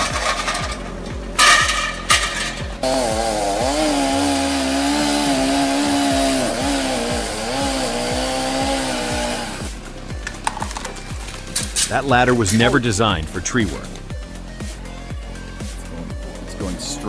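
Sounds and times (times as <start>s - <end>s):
chainsaw engine revving high: 0.0s - 10.2s.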